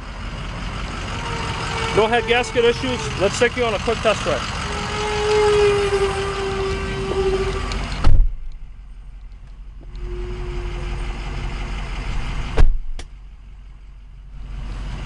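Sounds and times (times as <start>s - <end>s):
diesel engine idling: 0.0s - 15.0s
loud thumps: 7.9s - 8.5s, 12.5s - 13.1s.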